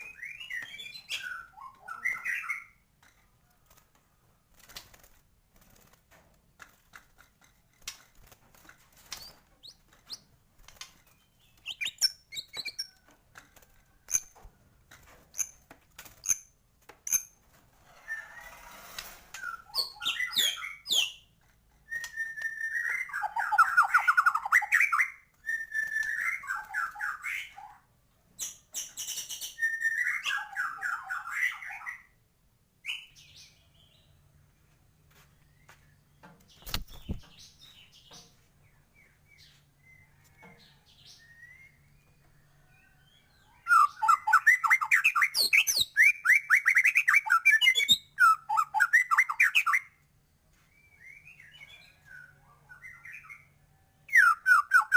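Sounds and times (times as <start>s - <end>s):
bird singing varied song: 0.0s - 3.2s, 9.1s - 13.1s, 19.4s - 27.8s, 28.4s - 32.2s, 32.8s - 54.9s.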